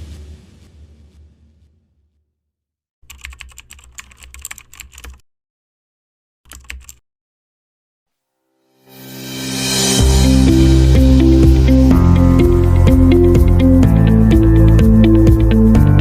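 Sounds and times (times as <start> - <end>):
computer keyboard typing: 3.1 - 5.2, 6.5 - 7.0
music: 8.6 - 16.0.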